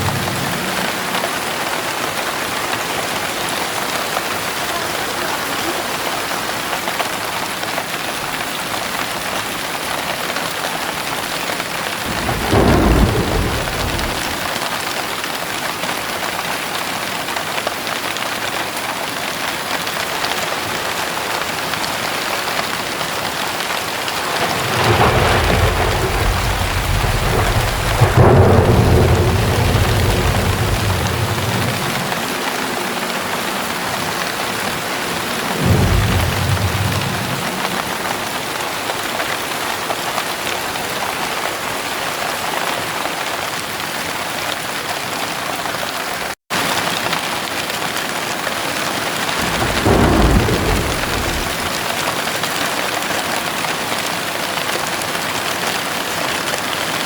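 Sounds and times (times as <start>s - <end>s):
thunder rumbling: 0.0s - 5.5s, 11.9s - 14.8s, 24.1s - 38.9s, 49.0s - 52.2s
heavy rain pouring: 0.0s - 57.0s.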